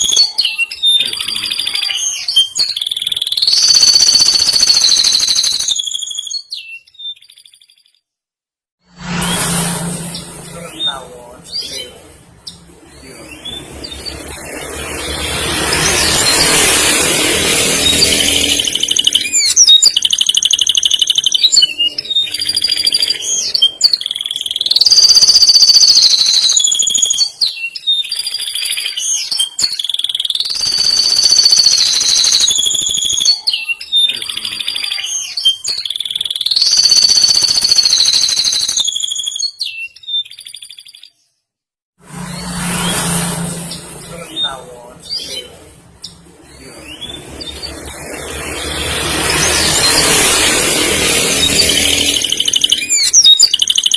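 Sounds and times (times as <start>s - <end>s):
canary singing trills: 0.0s - 8.0s, 10.0s - 41.4s, 42.4s - 53.9s.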